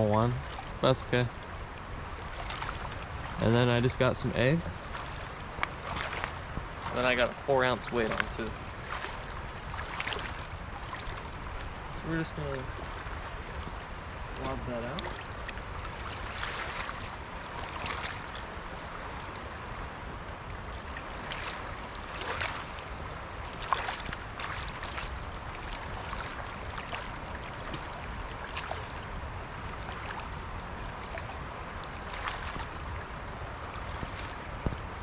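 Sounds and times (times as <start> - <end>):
river flowing fast: 0.0 - 35.0.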